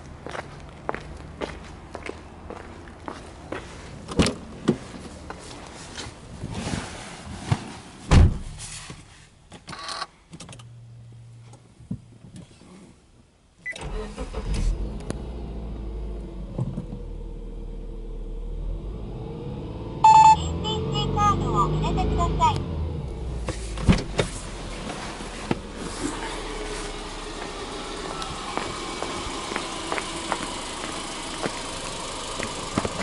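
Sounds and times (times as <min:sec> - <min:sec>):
car door thump: 0:08.1 - 0:08.6
car engine cranking and idling: 0:10.4 - 0:33.0
car door opening: 0:23.4 - 0:26.5.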